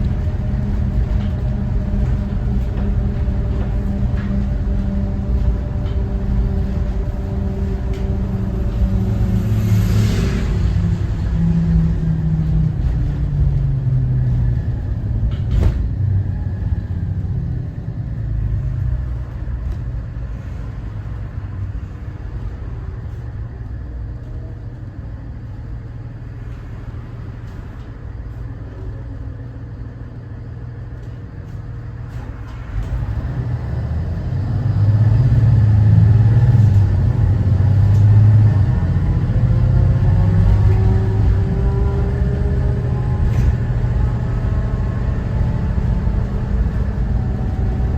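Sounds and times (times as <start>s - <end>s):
bus diesel engine rumble: 0.0s - 47.9s.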